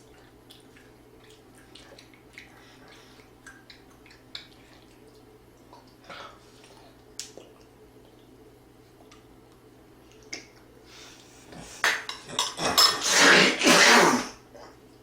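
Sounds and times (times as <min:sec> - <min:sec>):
spoon and dishes clattering: 0:11.9 - 0:13.1.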